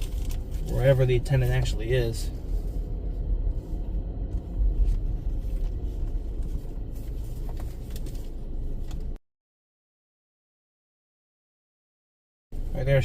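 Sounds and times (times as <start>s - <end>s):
car engine rumbling: 0.0s - 9.2s, 12.6s - 13.0s.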